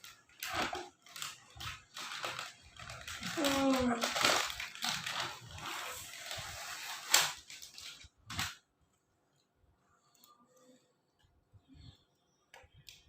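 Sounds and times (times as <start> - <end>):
rustling handling noise: 0.0 - 9.6.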